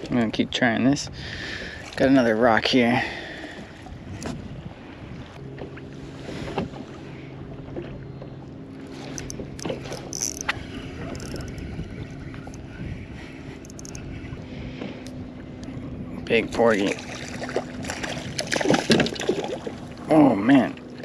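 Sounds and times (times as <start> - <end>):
water lapping at hull: 0.0 - 21.0
wind on microphone: 3.6 - 5.4, 9.1 - 19.2
low steady hum: 4.8 - 21.0
clicks and knocks of gear: 9.1 - 11.6, 13.6 - 14.0.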